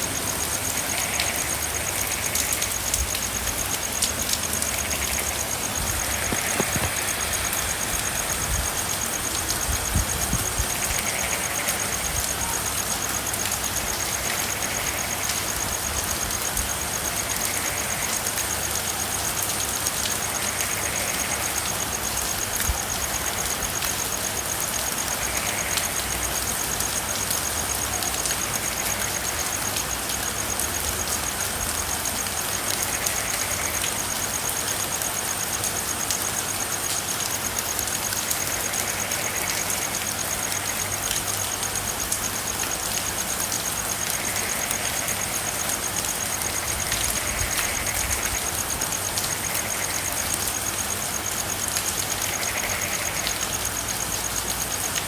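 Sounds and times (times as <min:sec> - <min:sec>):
faint frog calls: 0:00.0 - 0:55.0
rain drumming on car roof: 0:05.7 - 0:07.5.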